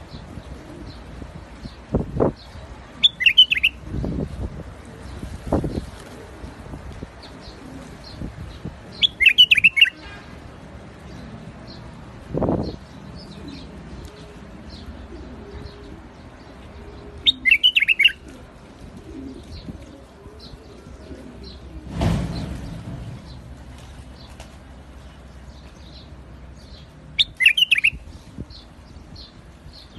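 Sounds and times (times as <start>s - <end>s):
bird singing bubbling notes: 17.2s - 18.2s, 27.2s - 28.0s.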